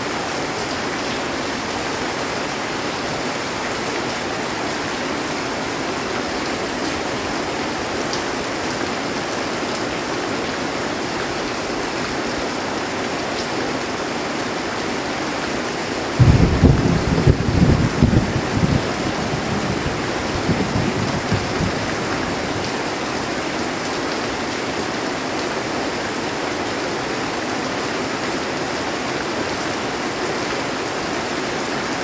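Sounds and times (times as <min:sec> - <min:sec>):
heavy rain on a metal roof: 0:00.0 - 0:32.0
thunder rumble: 0:16.2 - 0:22.8.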